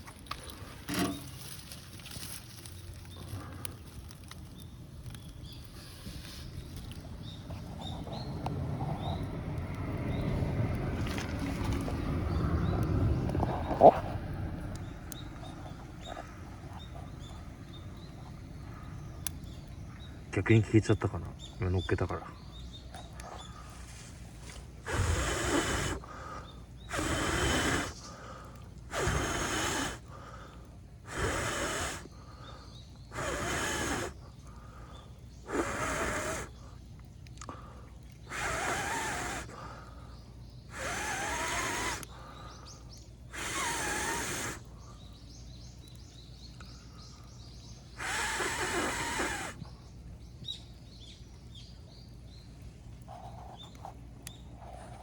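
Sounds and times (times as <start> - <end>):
person blowing forceful breaths: 24.8 - 36.8, 37.5 - 44.7, 48.0 - 49.7.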